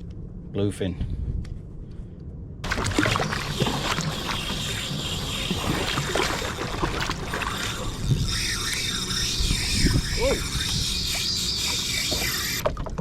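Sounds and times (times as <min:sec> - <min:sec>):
water splashing around a kayak: 0:02.6 - 0:08.4.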